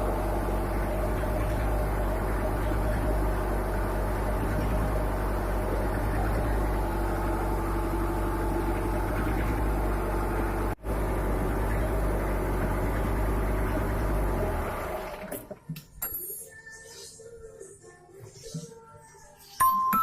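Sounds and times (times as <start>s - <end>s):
generator diesel engine running: 0.0s - 15.5s.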